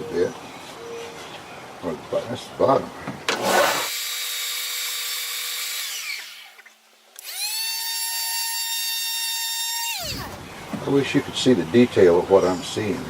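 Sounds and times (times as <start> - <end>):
electric sander motor whining: 7.2 - 10.7.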